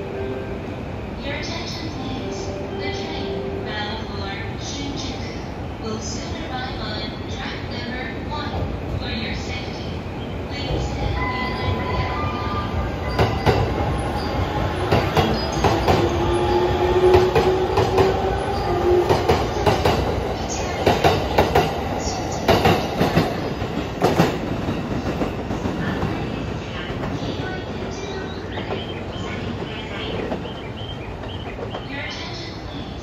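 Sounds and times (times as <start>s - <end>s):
train rumble: 0.0s - 33.0s
train whine: 9.1s - 33.0s.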